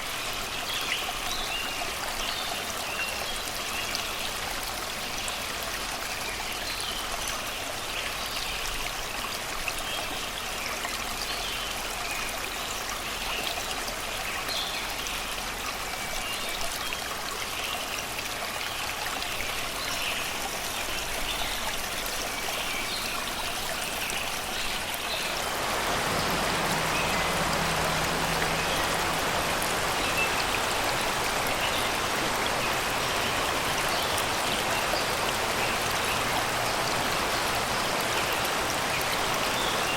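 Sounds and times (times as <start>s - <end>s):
river water babbling over rocks: 0.0s - 39.9s
birds singing faintly: 9.7s - 39.9s.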